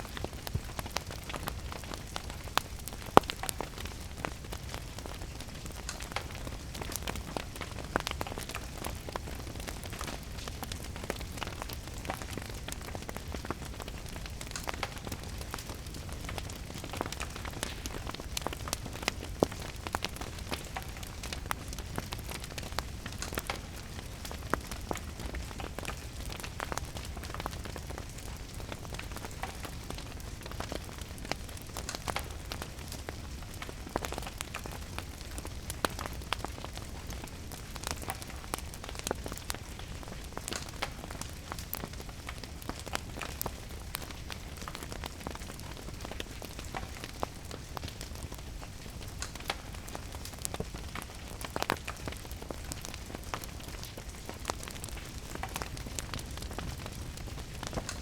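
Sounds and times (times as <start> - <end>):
fireplace crackling and popping: 0.0 - 58.0
rain pattering: 0.0 - 58.0.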